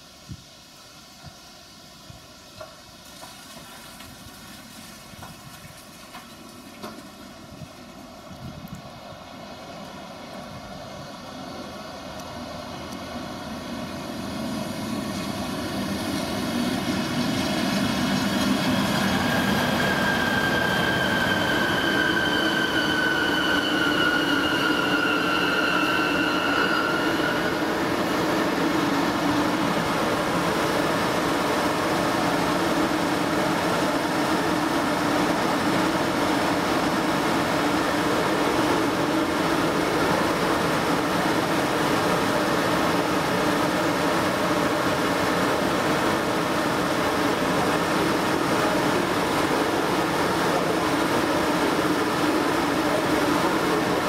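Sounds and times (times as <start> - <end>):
train wheels rumbling on rail: 0.0 - 54.0
high two-tone squeal: 17.0 - 28.4.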